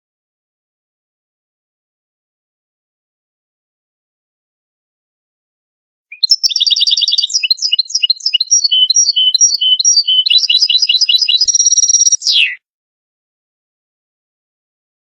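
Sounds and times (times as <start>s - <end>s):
bird singing twittering trills: 6.1s - 12.6s.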